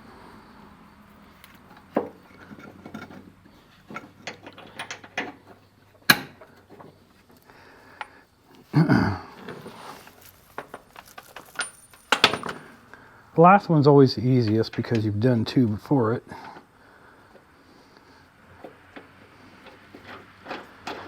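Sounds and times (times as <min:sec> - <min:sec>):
metal clicks and clinks: 0:10.2 - 0:12.8.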